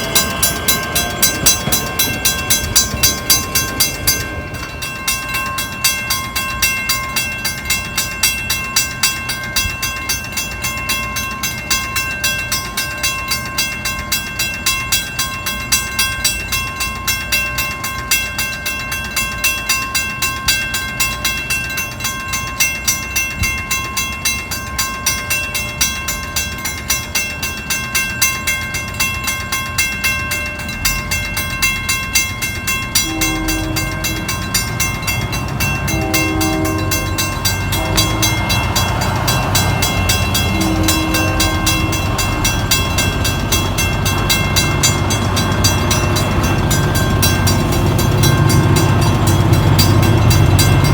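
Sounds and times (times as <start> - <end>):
low train rumble: 0.0 - 50.9
rapid steady ringing: 0.0 - 50.9
train horn blasts: 33.0 - 34.6, 35.8 - 42.4.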